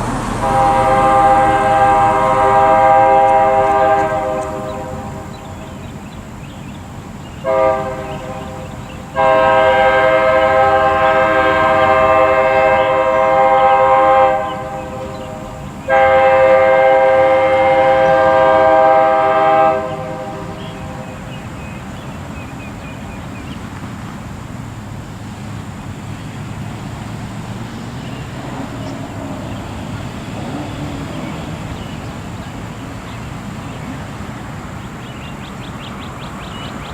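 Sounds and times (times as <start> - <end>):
distant locomotive air horn: 0.0 - 6.0, 7.4 - 21.8, 28.0 - 32.1.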